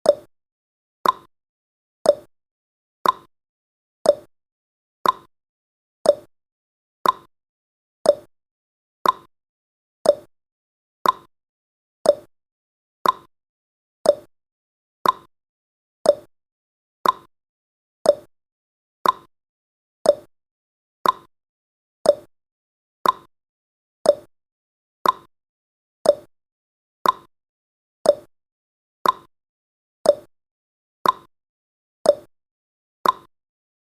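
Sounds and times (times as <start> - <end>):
timer ticking: 0.0 - 0.3, 1.0 - 1.3, 2.0 - 2.3, 3.0 - 3.3, 4.0 - 4.3, 5.0 - 5.3, 6.0 - 6.3, 7.0 - 7.3, 8.0 - 8.3, 9.0 - 9.3, 10.0 - 10.3, 11.0 - 11.3, 12.0 - 12.3, 13.0 - 13.3, 14.0 - 14.3, 15.0 - 15.3, 16.0 - 16.3, 17.0 - 17.3, 18.0 - 18.3, 19.0 - 19.3, 20.0 - 20.3, 21.0 - 21.3, 22.0 - 22.3, 23.0 - 23.3, 24.0 - 24.3, 25.0 - 25.3, 26.0 - 26.3, 27.0 - 27.3, 28.0 - 28.3, 29.0 - 29.3, 30.0 - 30.3, 31.0 - 31.3, 32.0 - 32.3, 33.0 - 33.3.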